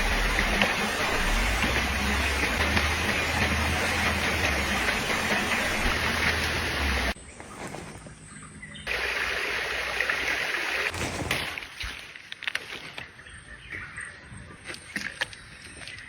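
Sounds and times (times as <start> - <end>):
rushing water: 0.0 - 7.2, 8.9 - 13.0.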